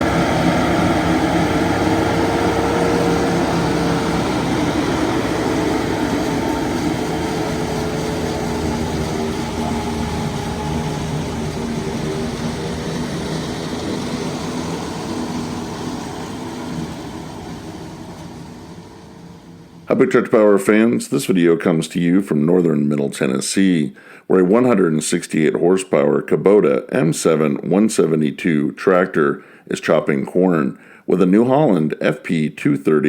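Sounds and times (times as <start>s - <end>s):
tractor engine drone: 0.0s - 20.2s.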